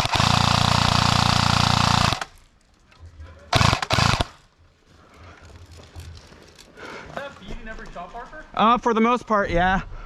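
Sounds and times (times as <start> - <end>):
airsoft gun firing full auto: 0.0 - 2.4, 3.5 - 4.4.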